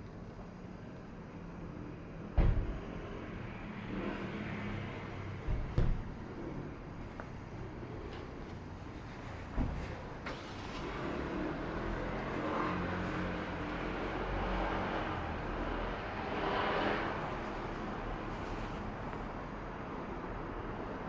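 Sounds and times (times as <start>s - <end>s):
low traffic rumble: 0.0s - 21.0s
car driving past: 9.8s - 19.3s.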